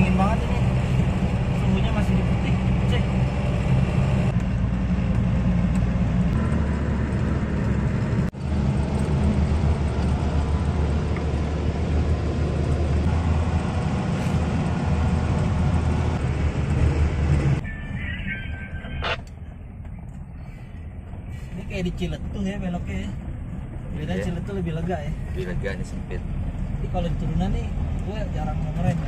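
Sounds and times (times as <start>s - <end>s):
engine droning under load: 0.0s - 22.1s.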